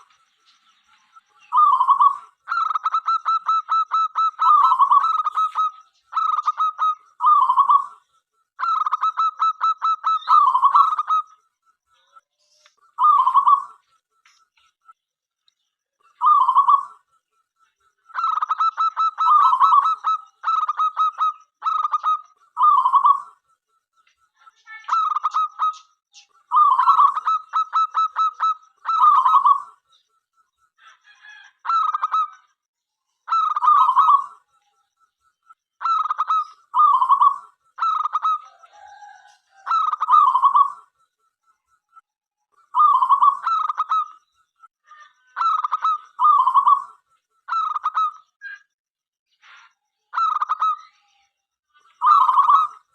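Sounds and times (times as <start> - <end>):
dove cooing: 1.5 - 8.0, 8.6 - 11.3, 16.2 - 17.0, 18.1 - 23.4, 26.5 - 29.7, 35.8 - 40.9, 45.4 - 48.1, 52.0 - 52.8.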